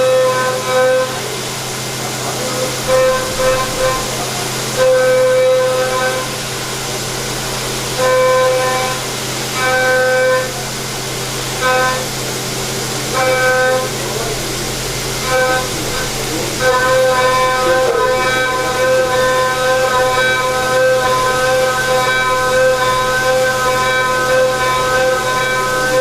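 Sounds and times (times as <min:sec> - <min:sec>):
machine hum and hiss: 0:00.0 - 0:26.0
cutting tool squealing: 0:02.0 - 0:06.5, 0:13.0 - 0:26.0.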